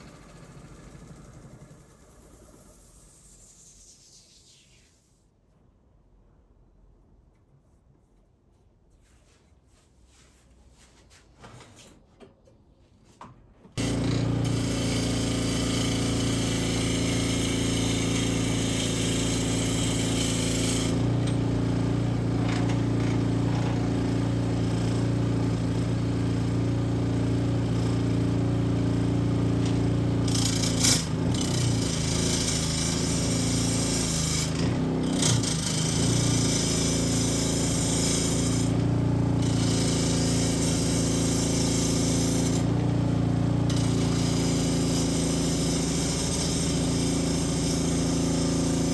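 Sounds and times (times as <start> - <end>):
power tool cutting wood: 13.8 - 48.9.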